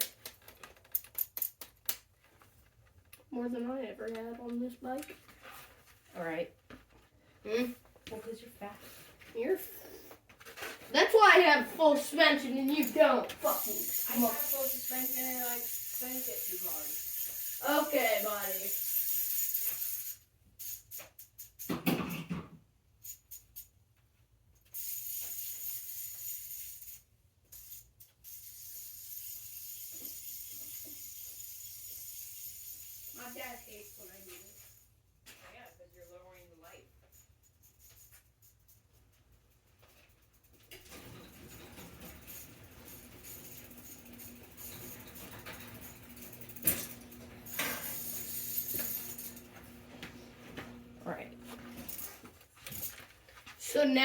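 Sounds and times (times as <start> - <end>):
bicycle parts clicking and rattling: 0.0 - 3.2, 12.6 - 21.8, 24.6 - 49.7
metal parts clinking: 40.2 - 49.5.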